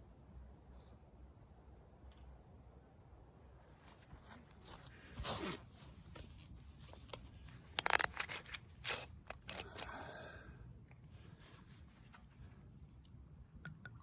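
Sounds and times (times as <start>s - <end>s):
rustling and scraping handling noises: 3.7s - 9.9s, 11.0s - 12.9s.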